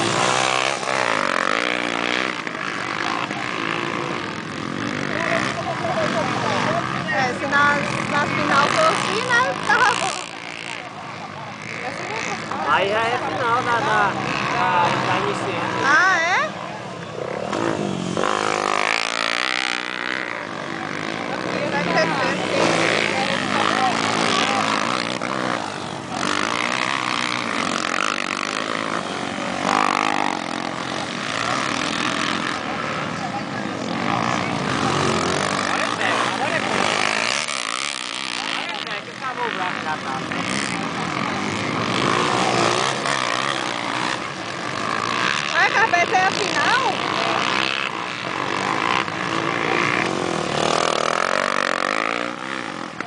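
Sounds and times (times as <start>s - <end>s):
motocross bike engines revving: 0.0s - 53.0s.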